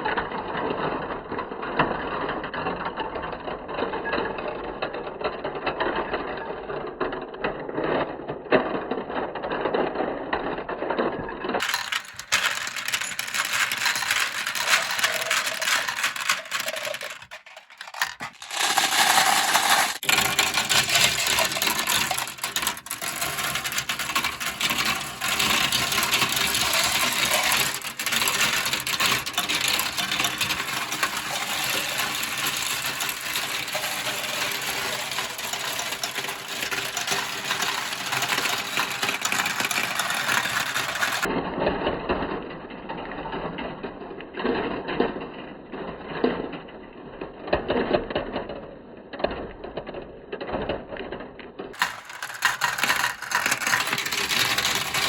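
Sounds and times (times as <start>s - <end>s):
marbles clattering down plastic run: 11.5s - 41.3s, 49.4s - 55.0s.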